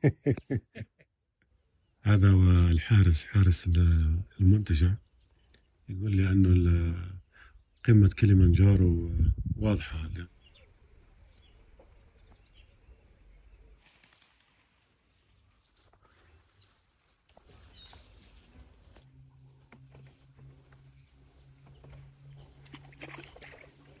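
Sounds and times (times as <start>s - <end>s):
low steady hum: 1.9s - 13.7s, 15.5s - 24.0s
bird calls: 10.2s - 24.0s
high chirping: 17.4s - 18.6s.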